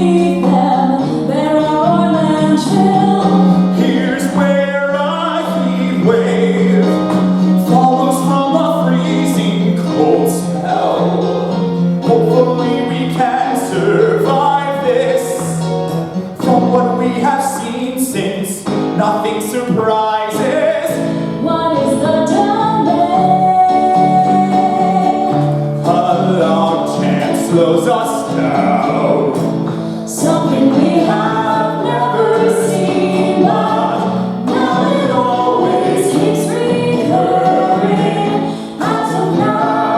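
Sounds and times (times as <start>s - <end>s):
voices singing a melody: 0.0s - 39.9s.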